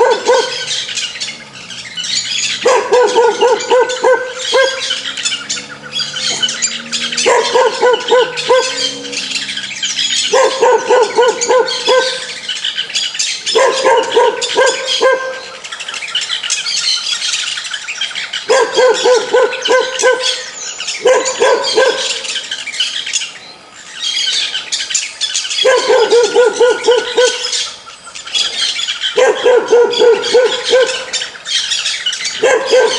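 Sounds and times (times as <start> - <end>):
dog barking: 0.0 - 0.8, 2.6 - 5.1, 7.2 - 9.2, 10.2 - 12.4, 13.5 - 15.6, 18.4 - 22.3, 25.6 - 27.6, 29.1 - 31.3, 32.3 - 32.9
birds chirping: 0.0 - 32.9.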